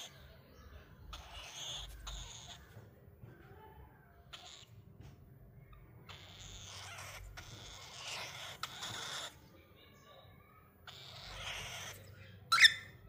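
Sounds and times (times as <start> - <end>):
cockatiel hissing: 1.1 - 2.6, 6.1 - 9.4, 10.9 - 12.7.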